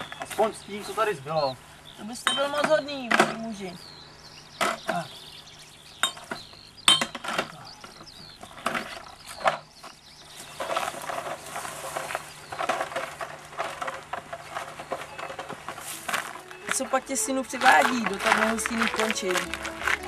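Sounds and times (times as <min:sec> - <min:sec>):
glass bottles clinking: 0:06.0 - 0:07.5
rustling: 0:07.2 - 0:20.0.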